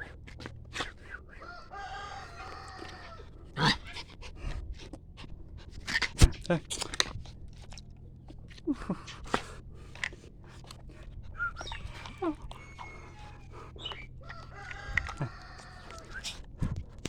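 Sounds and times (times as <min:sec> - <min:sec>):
rooster crowing: 0:01.4 - 0:03.3, 0:11.9 - 0:13.6, 0:14.2 - 0:16.2
chickens clucking: 0:01.4 - 0:03.8, 0:11.5 - 0:16.5.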